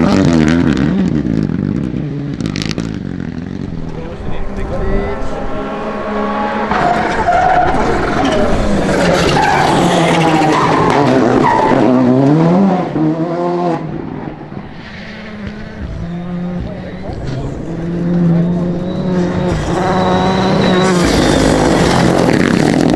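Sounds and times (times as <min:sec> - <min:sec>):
rally car engine revving: 0:00.0 - 0:22.9
tyres sliding on gravel: 0:14.6 - 0:22.9.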